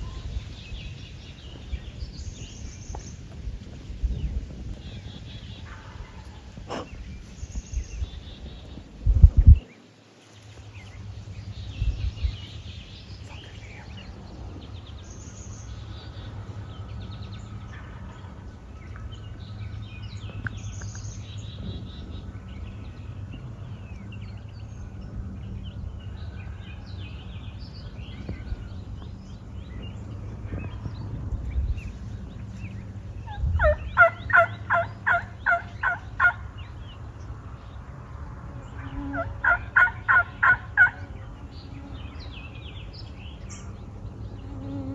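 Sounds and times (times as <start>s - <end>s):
songbird chirps: 0.0s - 44.9s
low hum: 10.4s - 44.9s
wild turkey yelps: 33.3s - 36.4s, 39.1s - 41.0s.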